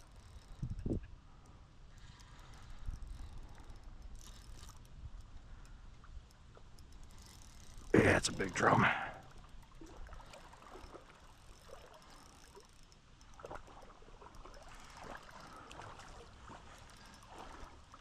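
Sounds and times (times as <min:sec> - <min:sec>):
creek water trickling: 0:00.0 - 0:18.0
short water splashes: 0:13.4 - 0:18.0.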